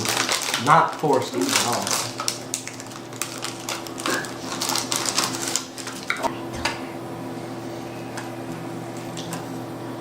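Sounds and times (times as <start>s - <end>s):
plastic packaging rustling: 0.0s - 6.3s
low electrical hum: 0.0s - 10.0s.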